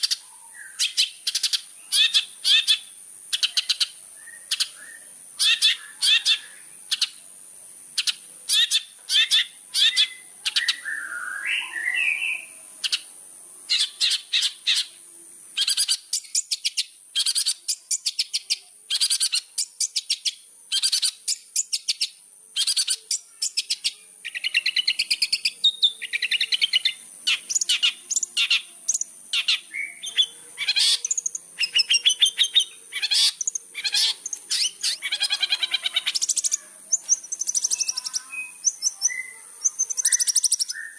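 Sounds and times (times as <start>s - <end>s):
shrike song chattering: 0.0s - 40.9s
warbled gliding bird phrases: 26.0s - 40.9s.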